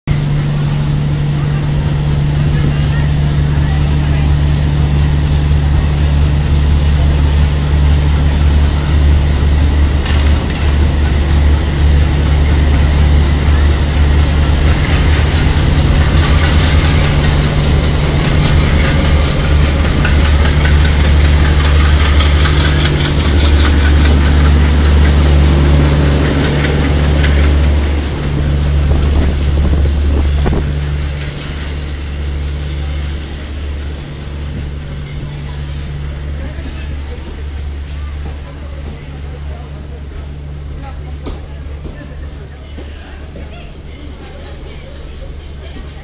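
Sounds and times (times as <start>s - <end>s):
diesel locomotive hum: 0.0s - 46.0s
train wheels clattering: 8.3s - 46.0s
faint high squeal: 28.7s - 31.4s.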